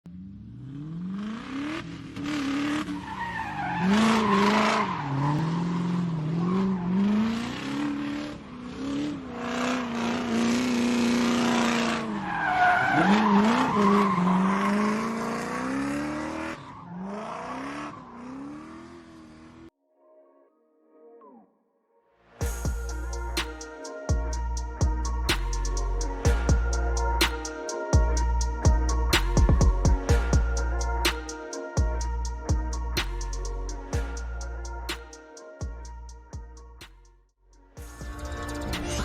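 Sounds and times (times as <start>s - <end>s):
car engine revving: 0.1s - 19.7s.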